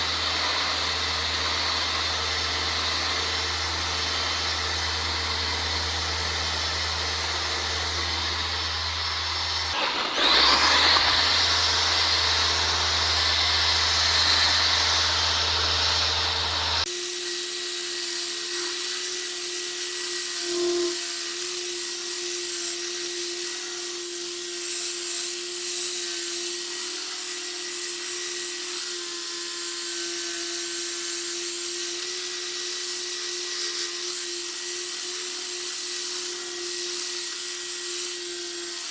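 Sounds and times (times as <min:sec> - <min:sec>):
thin motor whine: 0:00.0 - 0:17.1, 0:18.3 - 0:23.8
power tool hissing whir: 0:00.0 - 0:38.9.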